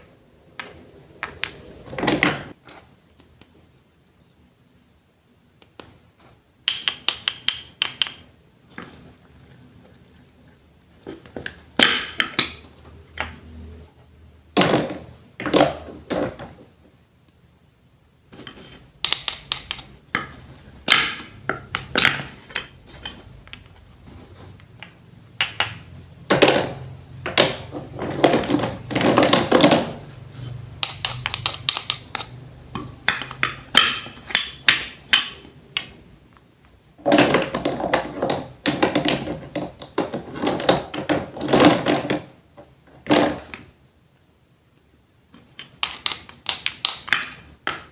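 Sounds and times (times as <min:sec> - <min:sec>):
small hard objects tapping: 0:06.6 - 0:09.0, 0:18.4 - 0:23.9, 0:30.7 - 0:36.0, 0:45.4 - 0:47.9.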